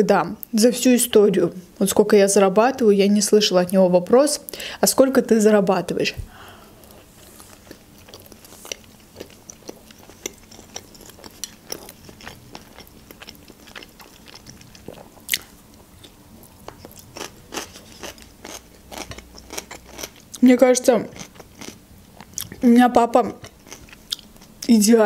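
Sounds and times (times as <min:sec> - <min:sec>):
cucumber crunch: 0:06.9 - 0:20.4
chewing clicks and smacks: 0:07.6 - 0:20.4, 0:23.4 - 0:24.6.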